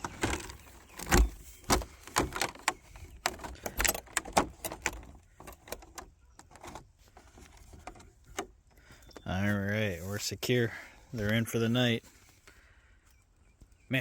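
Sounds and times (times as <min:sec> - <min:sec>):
enclosure clicks and clatter: 0:00.0 - 0:09.3.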